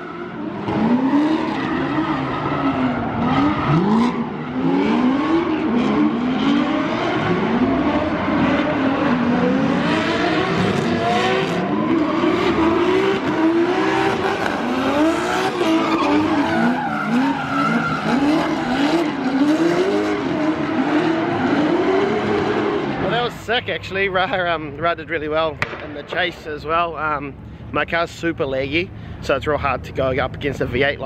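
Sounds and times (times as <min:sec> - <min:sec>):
car engines revving: 0:00.0 - 0:31.0
tyres screeching: 0:14.6 - 0:23.1.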